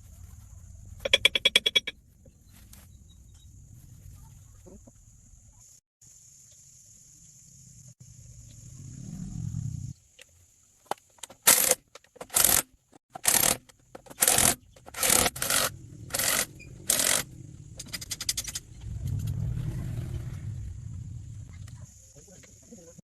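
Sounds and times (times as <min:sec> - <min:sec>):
low hum: 0:15.3 - 0:22.0.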